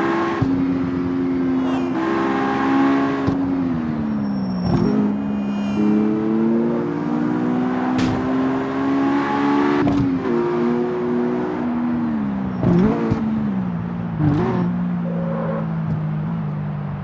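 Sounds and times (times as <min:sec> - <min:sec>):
car engine running: 0:00.0 - 0:11.9.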